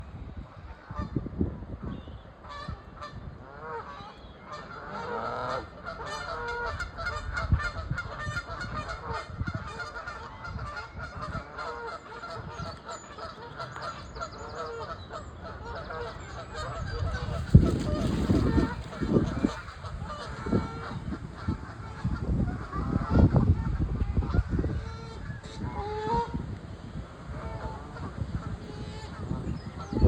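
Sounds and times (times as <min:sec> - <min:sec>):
geese honking: 0:02.4 - 0:23.2, 0:24.2 - 0:26.4.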